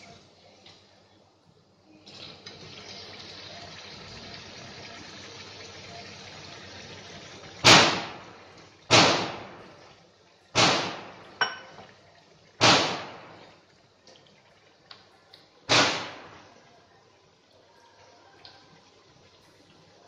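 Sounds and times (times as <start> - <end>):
food deep-frying in oil: 0.0 - 20.0
small clink: 11.4 - 11.9
loud sudden noises: 15.7 - 16.5.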